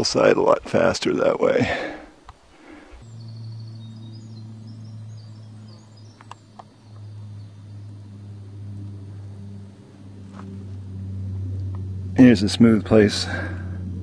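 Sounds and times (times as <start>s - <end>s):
steady low hum: 0.0s - 14.0s
distant songbird: 2.0s - 13.9s
sharp clicks: 6.2s - 7.1s.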